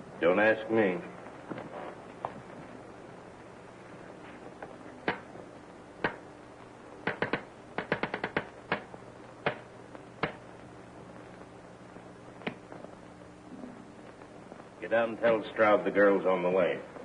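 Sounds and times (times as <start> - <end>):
faint steady hum: 0.0 - 17.0
telegraph sounder clicking: 6.0 - 6.3, 6.9 - 11.5.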